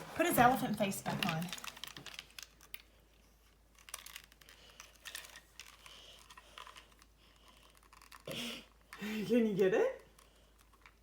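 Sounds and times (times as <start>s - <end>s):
plastic toy parts clicking: 1.1s - 2.9s, 3.5s - 9.0s.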